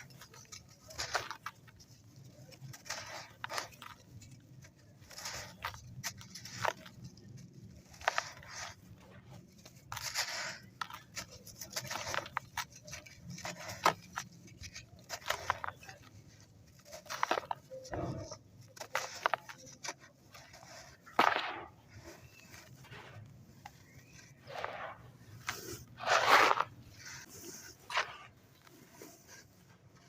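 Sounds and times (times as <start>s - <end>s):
dry sand crunching and crackling: 0.0s - 30.0s.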